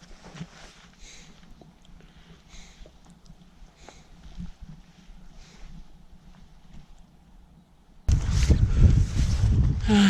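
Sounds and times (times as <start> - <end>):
rumbling microphone noise: 8.1 - 10.0.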